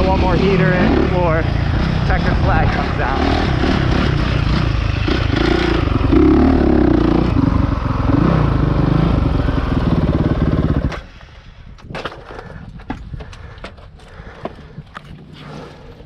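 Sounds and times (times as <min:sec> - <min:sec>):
dirt bike engine running hard: 0:00.0 - 0:11.2.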